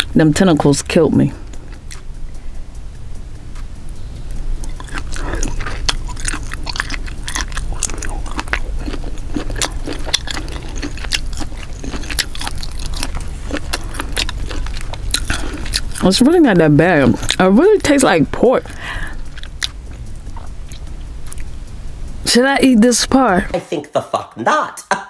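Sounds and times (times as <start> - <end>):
mouth clicks: 1.3 - 22.2
chewing and biting squid: 4.3 - 21.6.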